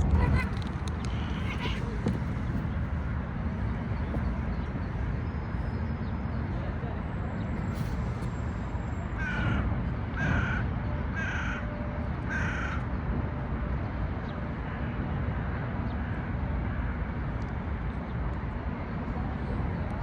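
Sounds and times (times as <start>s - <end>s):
low background rumble: 0.0s - 20.0s
crow cawing: 9.2s - 11.7s, 12.3s - 12.8s.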